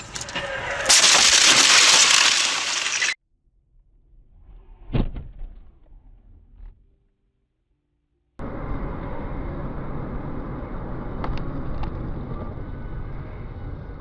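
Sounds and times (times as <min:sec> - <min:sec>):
vehicle crash with shattering glass: 0:00.0 - 0:03.2.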